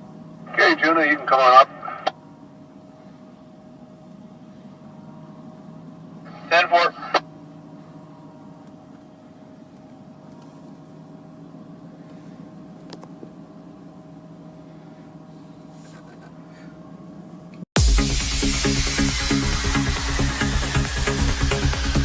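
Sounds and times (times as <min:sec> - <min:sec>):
truck engine humming: 0:17.8 - 0:22.0.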